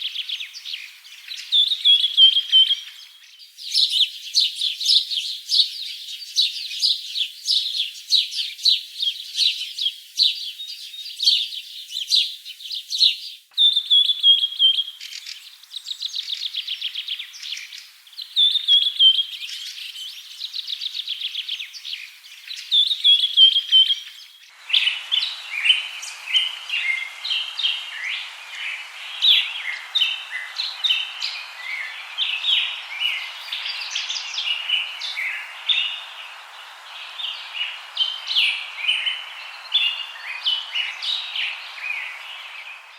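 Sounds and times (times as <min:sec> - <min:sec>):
songbirds chirping and singing: 0:00.0 - 0:42.9
steady background noise: 0:24.5 - 0:42.9.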